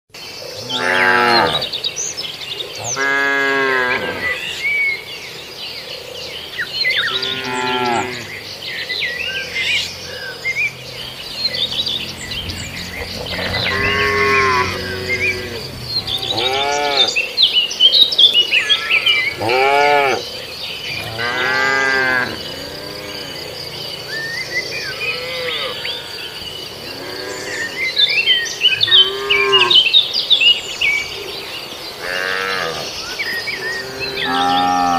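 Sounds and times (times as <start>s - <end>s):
cattle mooing: 0.6s - 1.7s, 2.9s - 4.5s, 7.0s - 8.3s, 11.1s - 17.2s, 18.7s - 20.3s, 20.9s - 23.6s, 28.8s - 29.8s, 32.0s - 32.9s, 33.7s - 34.9s.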